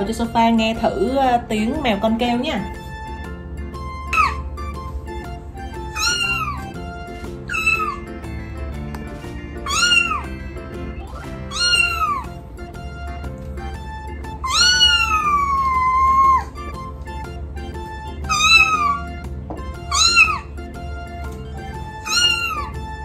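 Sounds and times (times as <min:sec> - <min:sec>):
background music: 0:00.0 - 0:23.0
kitten meows from laptop: 0:06.0 - 0:06.6, 0:07.5 - 0:08.0, 0:09.7 - 0:10.3, 0:11.5 - 0:12.2, 0:14.4 - 0:16.4, 0:18.3 - 0:19.0, 0:19.9 - 0:20.4, 0:22.0 - 0:22.8.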